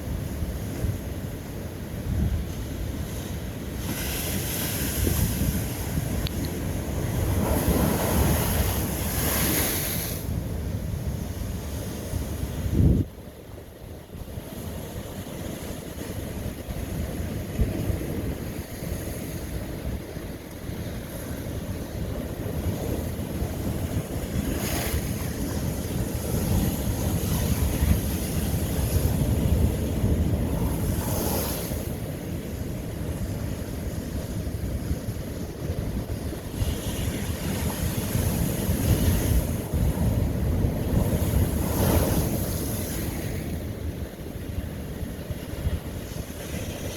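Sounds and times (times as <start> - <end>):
surf rumbling: 0.0 - 46.9
waves crashing on rock: 2.9 - 10.4.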